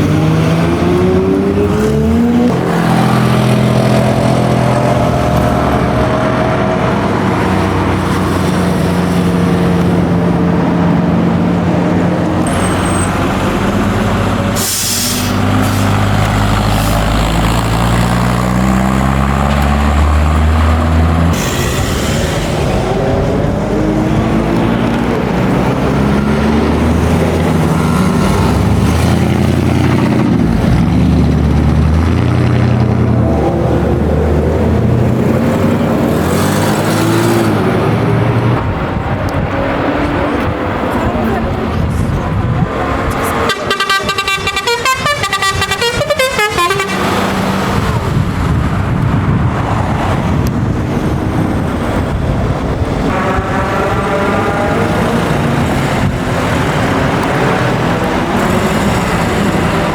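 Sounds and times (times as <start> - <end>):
musical car horn tune: 43.4 - 47.2.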